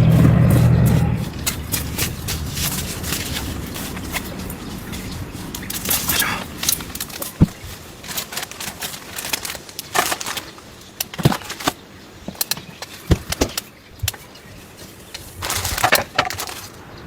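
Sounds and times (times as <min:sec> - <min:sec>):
dull knocks: 0:00.0 - 0:07.8.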